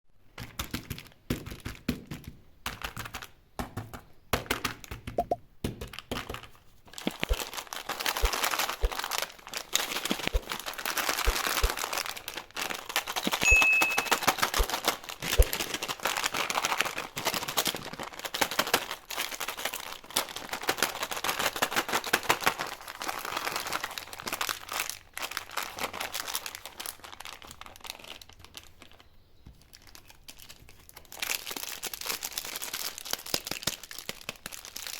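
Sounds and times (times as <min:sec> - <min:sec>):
taps and clicks: 0:03.9 - 0:05.9, 0:13.3 - 0:14.7
candy wrappers crinkling: 0:05.8 - 0:34.9.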